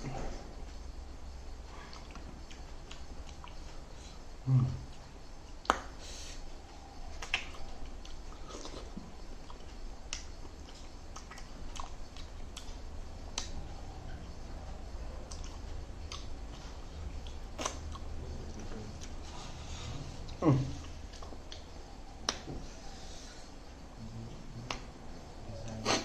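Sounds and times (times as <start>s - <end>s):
sharp mouth clicks and smacks: 1.8s - 3.8s, 4.8s - 6.5s, 7.1s - 14.4s, 15.2s - 19.3s, 20.2s - 22.6s, 24.5s - 25.0s
person chewing and biting food: 7.2s - 12.8s, 15.3s - 21.6s.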